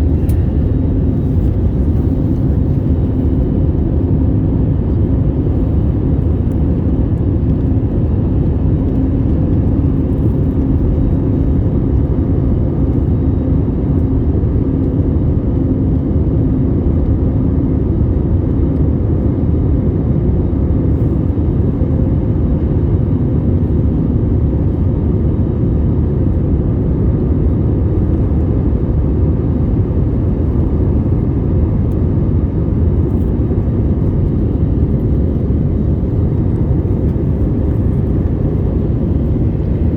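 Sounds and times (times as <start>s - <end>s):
faint hum: 0.0s - 19.5s
airliner cabin rumble: 0.0s - 39.9s.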